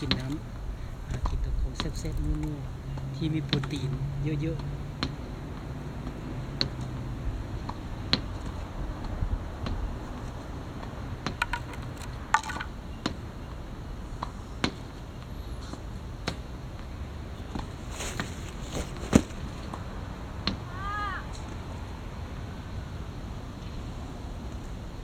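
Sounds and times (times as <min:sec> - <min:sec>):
sharp clicks and knocks: 0:11.2 - 0:12.7.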